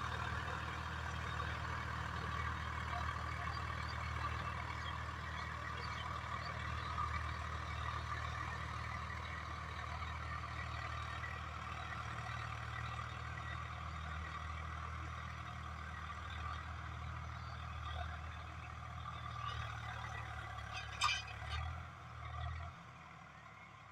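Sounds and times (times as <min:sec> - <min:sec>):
tractor diesel engine running: 0:00.0 - 0:22.2.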